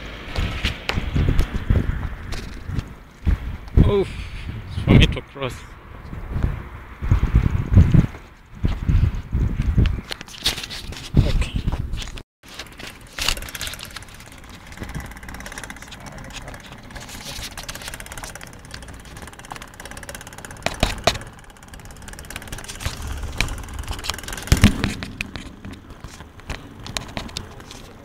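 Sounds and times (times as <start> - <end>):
road noise rumble: 0.0 - 28.0
vehicle engine running: 12.5 - 28.0
sharp thumps: 12.7 - 27.6.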